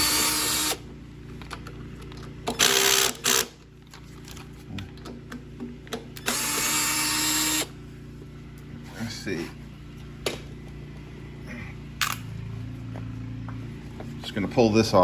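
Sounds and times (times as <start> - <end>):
cordless drill spinning: 0.0 - 0.9, 2.5 - 3.6, 6.2 - 7.8.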